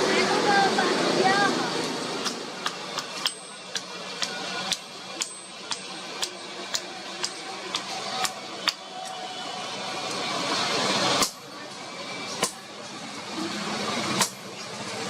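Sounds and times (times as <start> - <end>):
hammer on hot iron anvil: 2.2 - 8.8.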